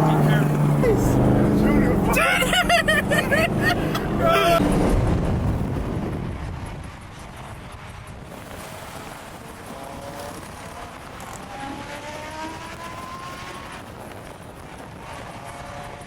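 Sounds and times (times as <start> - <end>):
car engine hum rising in pitch: 0.0 - 6.3, 8.8 - 13.9
car engine rumble: 0.0 - 16.0.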